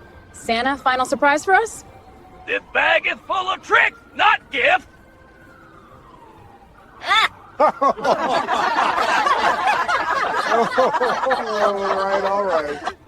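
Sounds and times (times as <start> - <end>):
faint falling siren-like tone: 0.0 - 12.8
people laughing together: 7.2 - 13.0.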